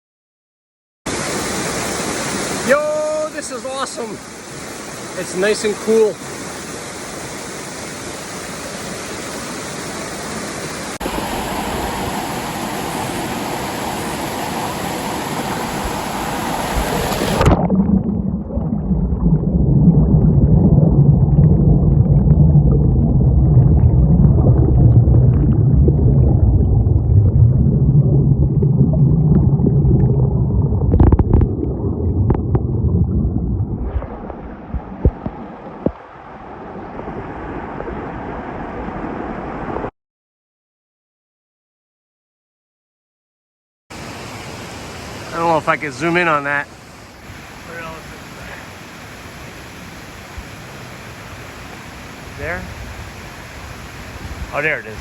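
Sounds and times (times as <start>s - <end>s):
waterfall roaring: 1.1s - 17.6s, 44.0s - 55.0s
muffled low rumble with knocks: 26.7s - 31.6s, 32.2s - 36.0s.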